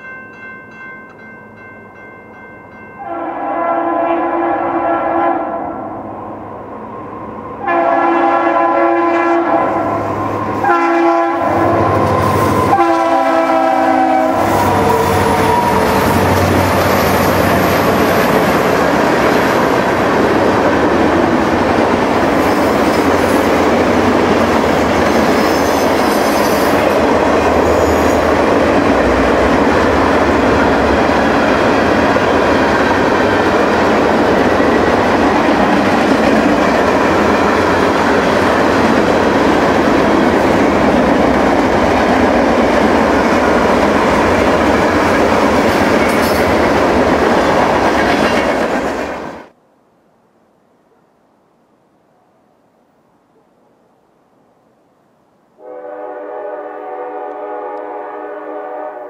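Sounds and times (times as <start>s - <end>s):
train air horn blasts: 3.0s - 6.0s, 7.6s - 17.2s, 55.6s - 59.0s
locomotive engines passing: 9.6s - 49.3s.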